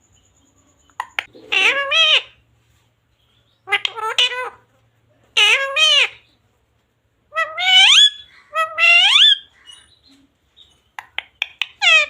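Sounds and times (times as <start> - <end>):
parrot high-pitched calls: 1.0 - 2.4, 3.6 - 4.7, 5.3 - 6.3, 7.3 - 10.0, 11.0 - 12.0.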